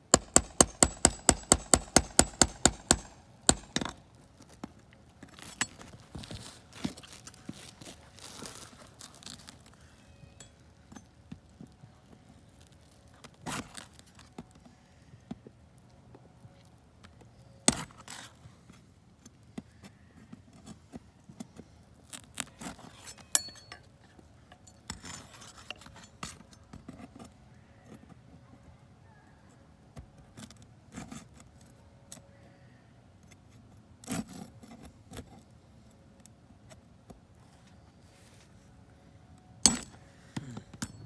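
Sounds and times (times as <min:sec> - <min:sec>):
knocks and metallic chinks: 0:00.1 - 0:04.6, 0:05.2 - 0:07.6, 0:22.9 - 0:27.3, 0:39.6 - 0:41.0.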